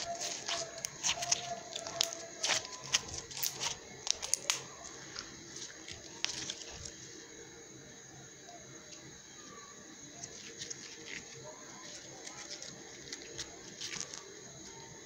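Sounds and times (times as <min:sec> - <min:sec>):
crunchy slime crackling and popping: 0:00.0 - 0:07.0, 0:10.2 - 0:15.0.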